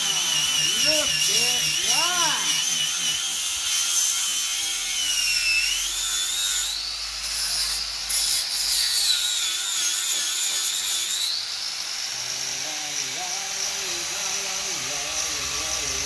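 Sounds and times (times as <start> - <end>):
angle grinder grinding metal: 0.0 - 16.0.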